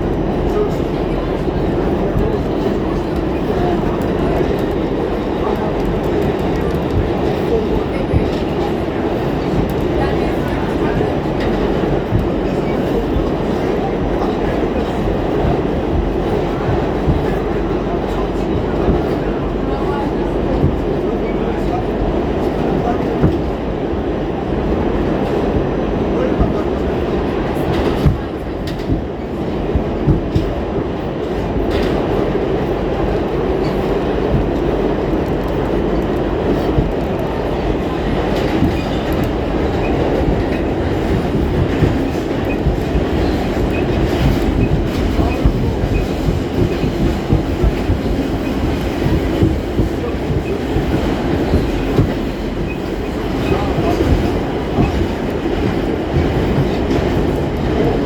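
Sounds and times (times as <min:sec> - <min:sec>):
rail joint clickety-clack: 0:00.0 - 0:58.0
subway wheels rumbling on rail: 0:00.0 - 0:58.0.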